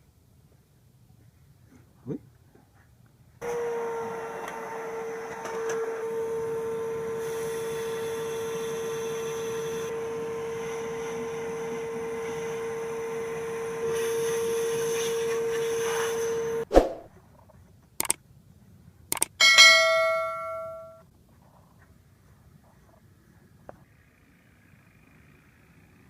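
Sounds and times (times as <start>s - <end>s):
machine whining and hissing: 3.4s - 16.7s.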